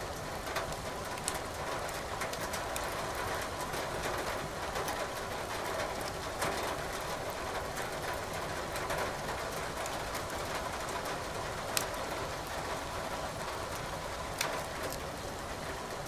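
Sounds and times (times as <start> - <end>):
firewood crackling and popping: 0.7 - 2.9, 11.6 - 12.0, 13.7 - 15.2.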